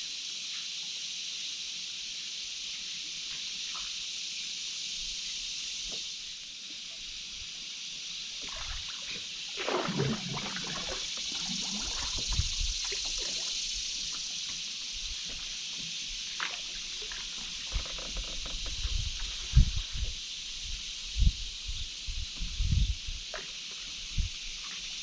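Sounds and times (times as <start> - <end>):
steady high hiss: 0.0 - 25.0
water gurgling from paddle stroke: 8.4 - 14.8.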